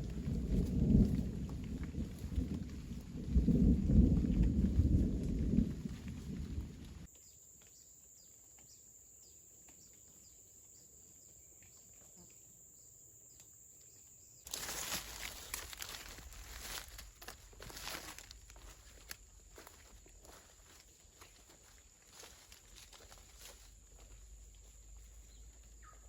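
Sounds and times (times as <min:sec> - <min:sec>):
footsteps on forest floor: 0:00.0 - 0:07.1, 0:14.5 - 0:26.0
low rumble of thunder: 0:00.0 - 0:07.1, 0:14.5 - 0:19.7.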